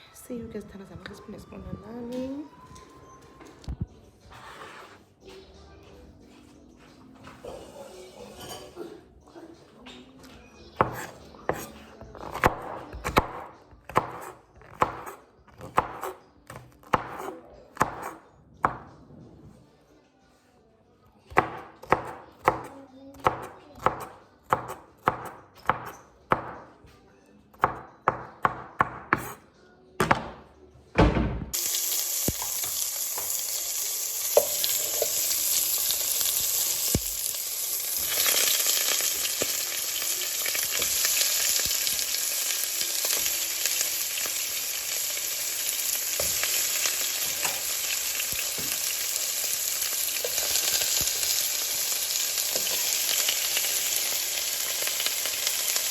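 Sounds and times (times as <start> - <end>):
knife chopping on cutting board: 10.8 - 18.9, 21.3 - 26.7, 27.6 - 29.4
food sizzling in hot pan: 31.6 - 55.9.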